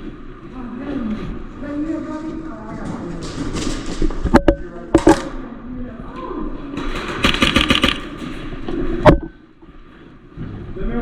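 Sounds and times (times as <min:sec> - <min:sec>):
airsoft guns firing: 0:06.8 - 0:08.5.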